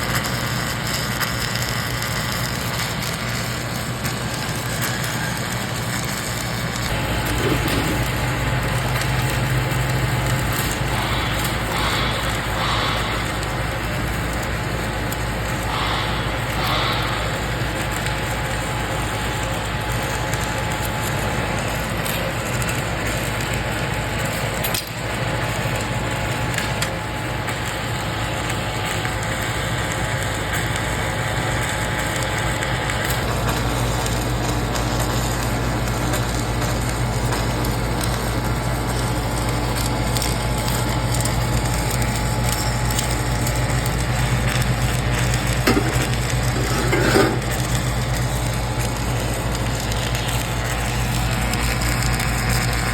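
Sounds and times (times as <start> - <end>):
crackle of burning flux: 0.0 - 52.9
welding equipment electrical hum: 0.0 - 52.9
deep steady drone: 6.8 - 14.4.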